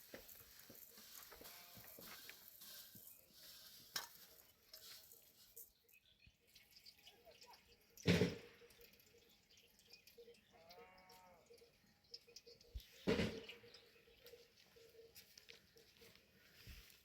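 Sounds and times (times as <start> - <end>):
goat bleating: 1.3 - 2.1.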